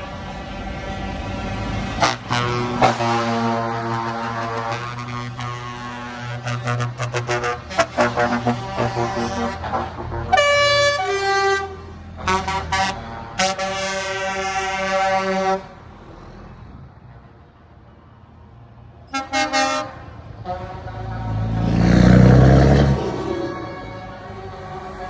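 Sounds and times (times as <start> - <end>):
truck air horns: 0.0 - 15.9, 19.1 - 25.0
diesel engine rumble: 0.0 - 18.1.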